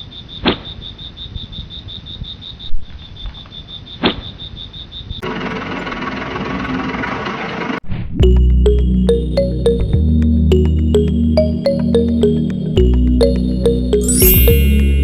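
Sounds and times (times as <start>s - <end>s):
cricket-like chirping trill: 0.0s - 5.2s
background music: 8.2s - 15.0s.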